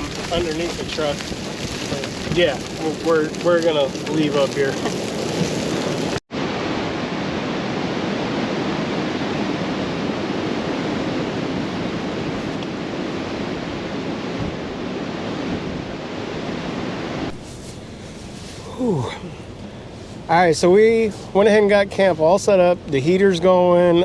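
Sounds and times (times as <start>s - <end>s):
strong wind on microphone: 0.0s - 17.4s.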